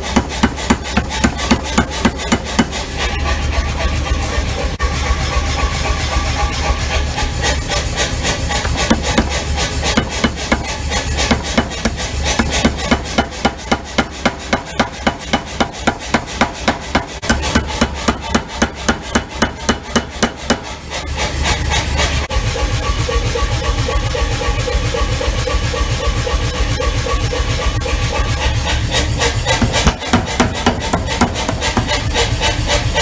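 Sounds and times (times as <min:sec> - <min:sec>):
power hammer striking hot steel: 0:00.0 - 0:03.2, 0:08.5 - 0:21.0, 0:29.4 - 0:33.0
hammer motor hum: 0:00.0 - 0:03.3, 0:07.8 - 0:21.0, 0:28.5 - 0:33.0.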